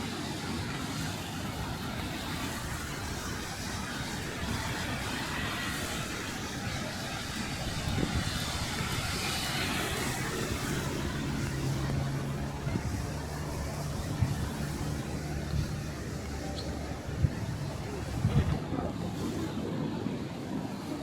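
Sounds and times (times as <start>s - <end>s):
low steady engine hum: 0.0s - 21.0s
noisy city background: 0.0s - 21.0s
vehicle passing: 4.3s - 18.7s.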